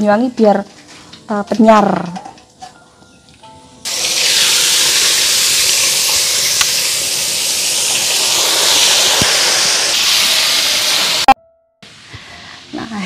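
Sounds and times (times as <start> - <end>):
food sizzling in hot oil: 3.9 - 11.3.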